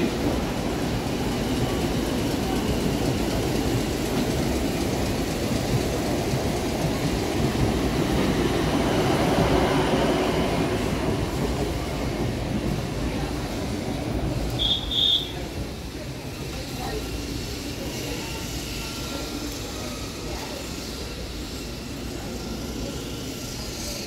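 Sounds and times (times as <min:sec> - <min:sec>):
electric train rumbling hum: 0:00.0 - 0:24.0.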